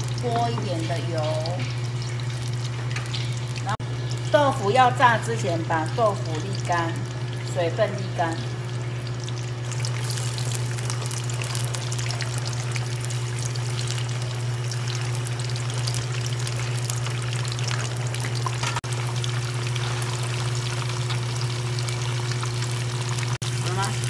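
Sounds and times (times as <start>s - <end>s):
food deep-frying in oil: 0.0s - 24.0s.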